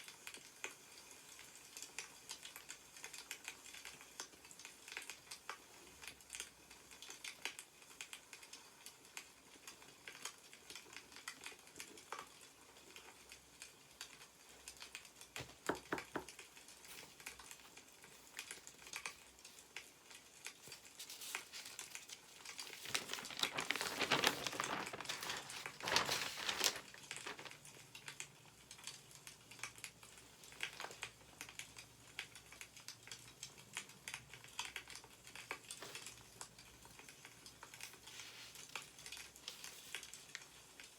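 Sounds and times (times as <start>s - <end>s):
wood fire crackling: 1.4s - 40.9s
newspaper pages rustling: 16.8s - 27.8s, 30.6s - 31.1s, 37.6s - 40.4s.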